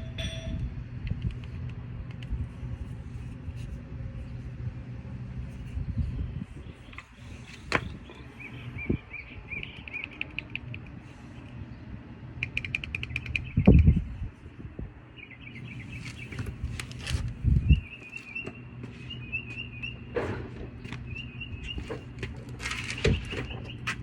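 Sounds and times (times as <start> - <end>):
birds chirping and trilling: 5.8 - 24.0.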